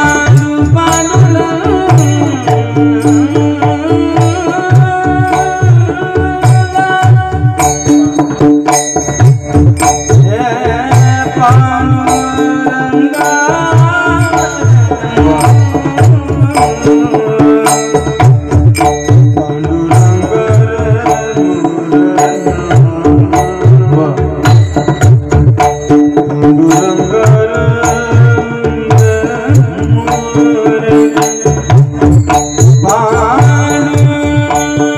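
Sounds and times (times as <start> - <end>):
devotional music: 0.0 - 34.9
hand drum beating: 0.0 - 34.9.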